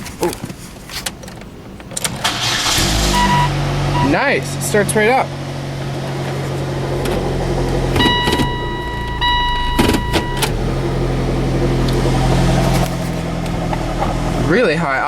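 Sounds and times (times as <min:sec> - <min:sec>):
car engine idling high: 0:01.5 - 0:15.0
electronic beep: 0:03.2 - 0:04.2, 0:08.0 - 0:10.5
clicks: 0:08.0 - 0:10.6.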